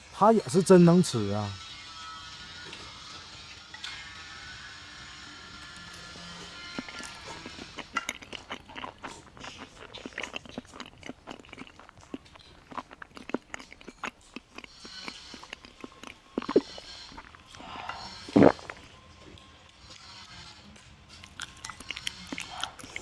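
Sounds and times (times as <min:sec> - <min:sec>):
person chewing: 0:05.6 - 0:23.0
wet crackling clicks: 0:06.8 - 0:17.4.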